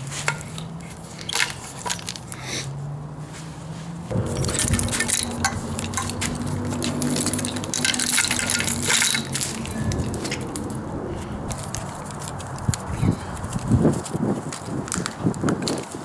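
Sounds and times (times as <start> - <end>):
metal tools clinking: 0.0 - 2.5, 4.1 - 13.4
steady low hum: 4.1 - 13.4.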